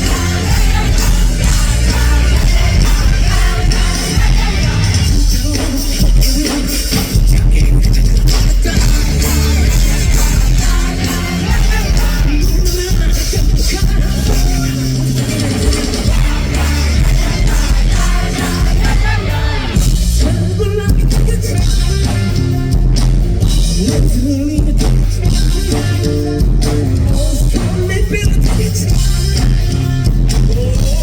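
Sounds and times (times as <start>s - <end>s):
live rock band playing: 0.0s - 31.0s.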